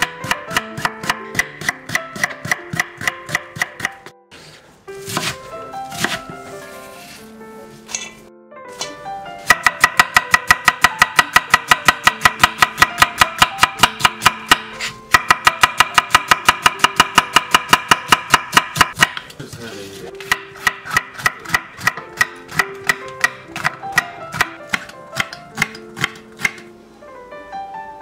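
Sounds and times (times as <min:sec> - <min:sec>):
knife chopping on wooden board: 0:00.0 - 0:04.1, 0:05.0 - 0:06.4, 0:08.8 - 0:19.6, 0:20.2 - 0:26.7.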